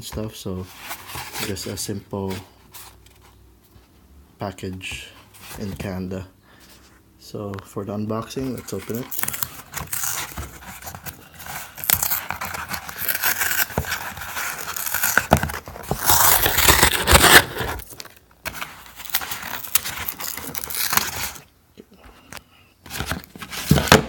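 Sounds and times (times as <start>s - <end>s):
paper package tearing and crinkling: 8.4s - 21.5s.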